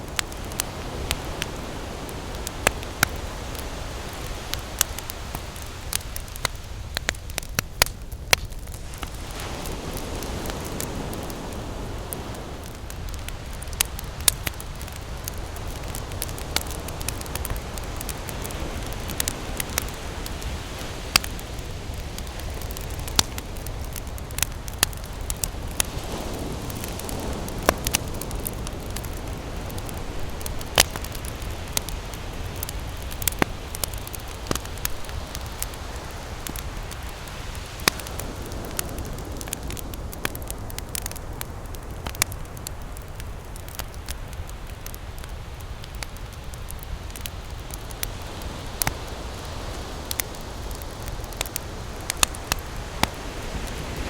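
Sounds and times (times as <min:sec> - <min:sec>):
ocean surf rushing: 0:00.0 - 0:06.6, 0:08.8 - 0:40.5
campfire crackling: 0:00.0 - 0:54.0.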